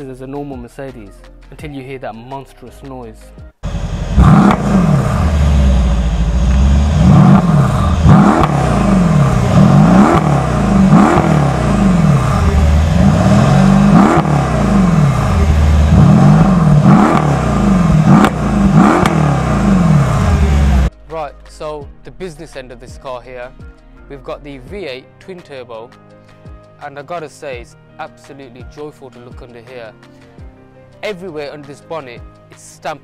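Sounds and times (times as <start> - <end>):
car engine revving: 3.6 - 20.9.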